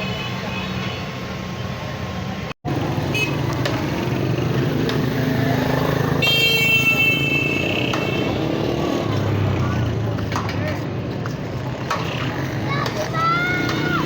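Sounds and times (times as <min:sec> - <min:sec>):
vehicle engines running: 0:01.7 - 0:14.0
vehicle horn: 0:03.1 - 0:03.5, 0:06.2 - 0:08.6.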